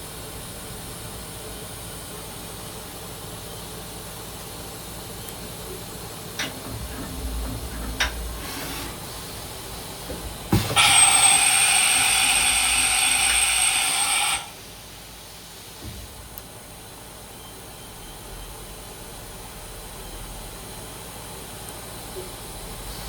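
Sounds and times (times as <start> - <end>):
machine hiss with high whine: 0.1 - 21.6
low machine hum: 4.3 - 15.1.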